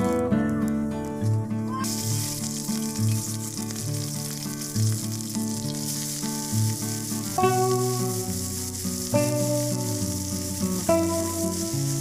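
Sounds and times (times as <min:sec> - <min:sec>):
oil sizzling in a wok: 0:01.2 - 0:12.0.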